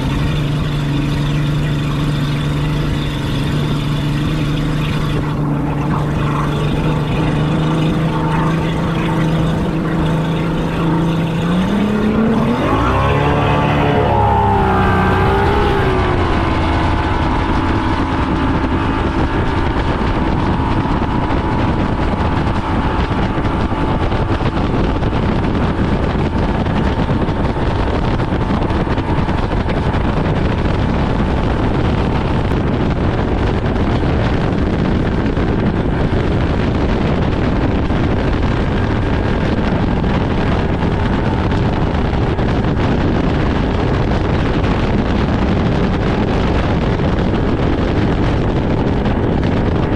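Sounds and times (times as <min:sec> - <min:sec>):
faint whine: 0:00.0 - 0:35.4
motorboat engine: 0:00.0 - 0:49.9
water noise: 0:00.0 - 0:49.9
wind buffeting microphone: 0:00.0 - 0:49.9.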